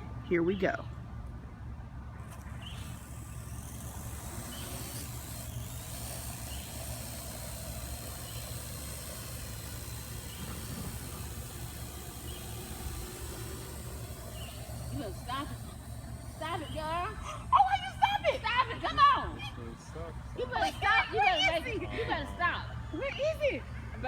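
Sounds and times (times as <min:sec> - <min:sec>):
drone propellers buzzing: 0:01.6 - 0:24.0
wind on microphone: 0:09.9 - 0:13.1.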